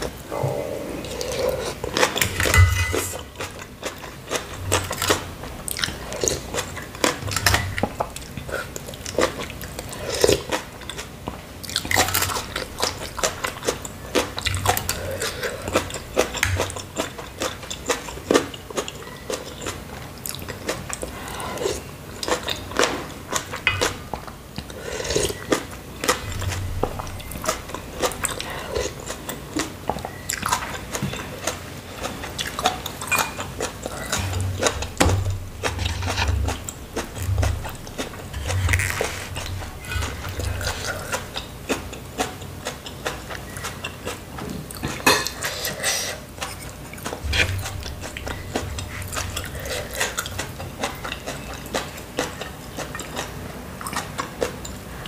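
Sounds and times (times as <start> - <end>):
chewing noodles: 0.0 - 55.0.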